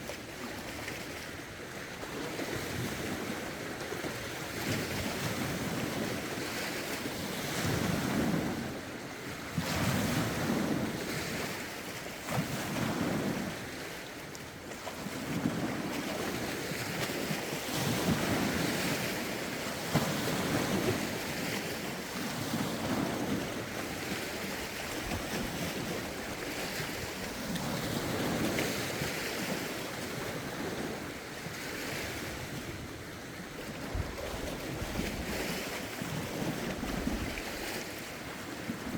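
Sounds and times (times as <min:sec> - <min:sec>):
lake waves washing ashore: 0:00.0 - 0:38.9
wind rumbling on microphone: 0:15.0 - 0:38.9.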